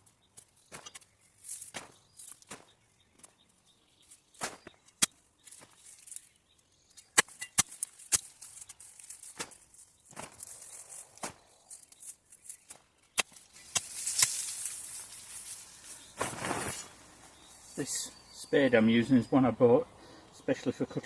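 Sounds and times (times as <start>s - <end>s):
soil scraping: 0.0s - 18.7s
spade chopping into soil and roots: 0.4s - 3.3s, 4.3s - 5.9s, 6.9s - 14.8s.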